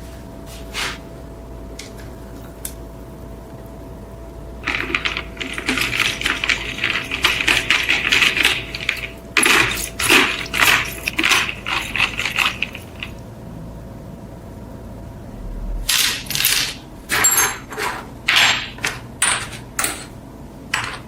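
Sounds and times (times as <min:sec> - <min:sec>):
metal scraping and clinking: 0:04.6 - 0:13.2, 0:15.9 - 0:20.1.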